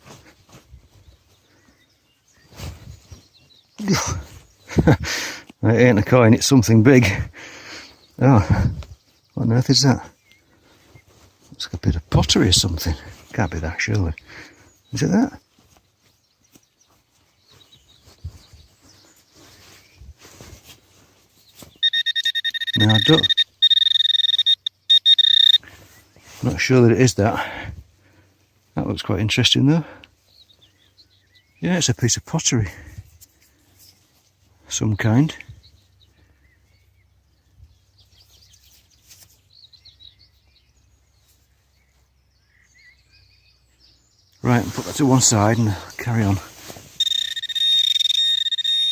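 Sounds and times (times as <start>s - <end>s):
faint birdsong chirps: 0.0s - 48.9s
bird chirps and twitters: 21.4s - 26.1s, 35.6s - 48.9s.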